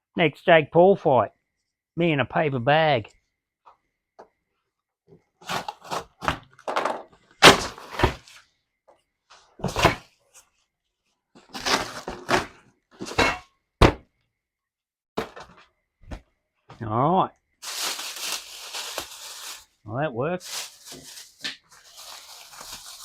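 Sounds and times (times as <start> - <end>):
cardboard box being cut and ripped: 5.4 - 6.3, 11.5 - 12.6.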